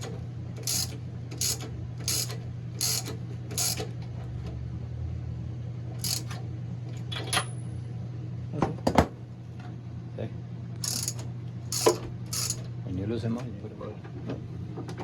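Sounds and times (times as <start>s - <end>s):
ratchet wrench clicking: 0.0s - 3.9s, 6.0s - 6.4s, 10.8s - 12.6s
steady low hum: 0.0s - 15.0s.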